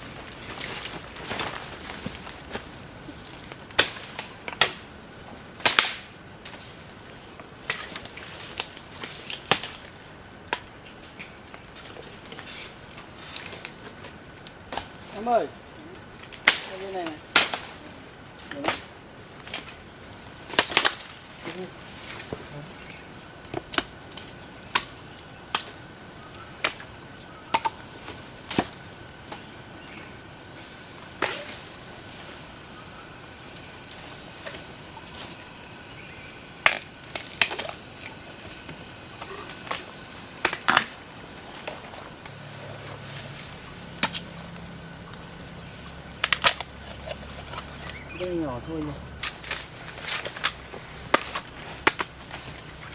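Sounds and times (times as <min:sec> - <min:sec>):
bamboo shoots snapping: 0:00.2 - 0:04.9, 0:05.6 - 0:06.7, 0:16.2 - 0:17.8, 0:20.5 - 0:30.1, 0:36.6 - 0:52.9.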